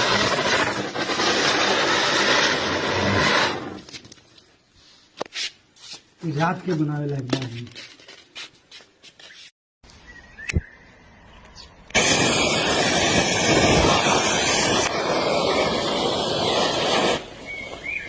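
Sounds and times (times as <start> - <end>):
gunpowder burning with rushing hiss: 0.0 - 4.2, 11.9 - 18.0.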